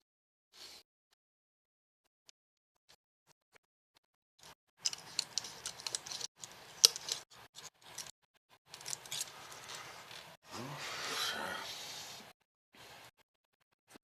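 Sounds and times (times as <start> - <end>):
small hard objects clicking: 4.4 - 8.1, 8.7 - 10.4.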